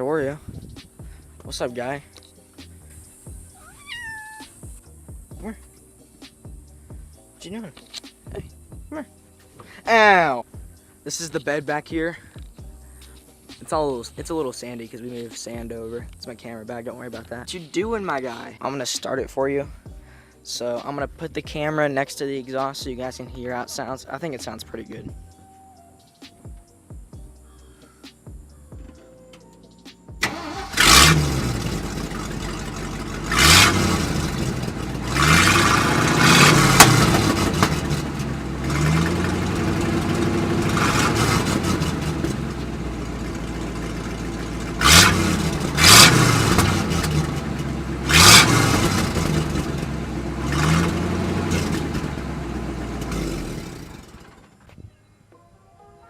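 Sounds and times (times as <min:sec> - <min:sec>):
truck engine starting and revving: 0:30.2 - 0:54.7.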